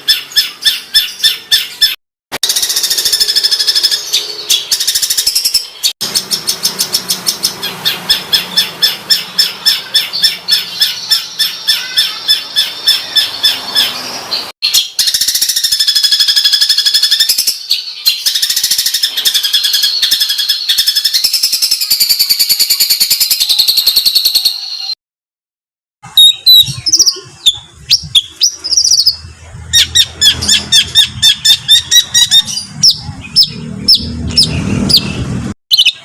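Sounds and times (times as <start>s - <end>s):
songbird harsh rapid calls: 0.0s - 22.8s.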